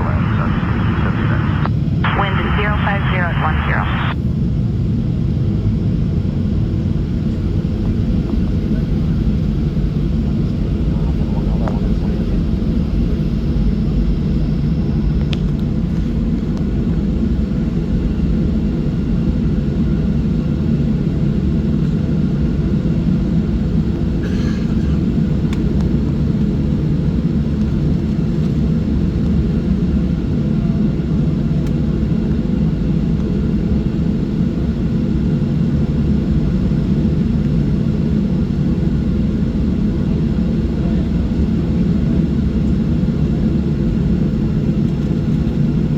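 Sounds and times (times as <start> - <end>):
turbofan engines roaring: 0.0 - 14.4.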